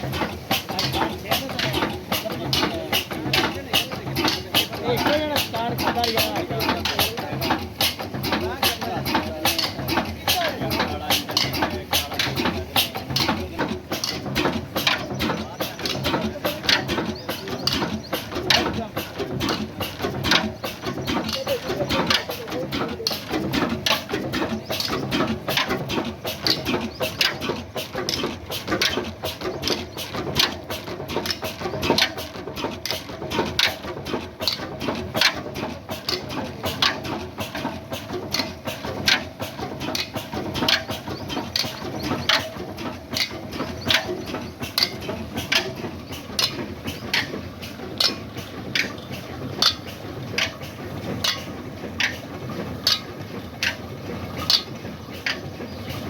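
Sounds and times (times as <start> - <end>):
oil engine knocking: 0.0 - 56.0.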